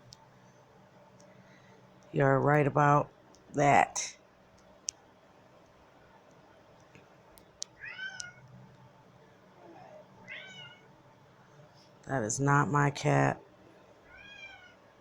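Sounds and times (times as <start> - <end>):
cat meowing: 7.8 - 8.4, 10.2 - 10.9, 14.1 - 14.8.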